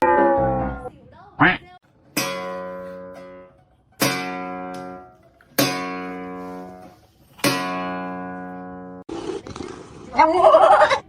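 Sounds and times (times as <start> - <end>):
guitar chords strummed: 2.2 - 9.0.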